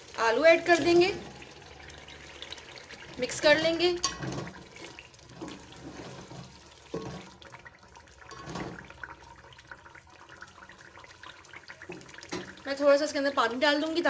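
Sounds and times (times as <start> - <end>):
potatoes sizzling in oil: 0.0 - 7.4.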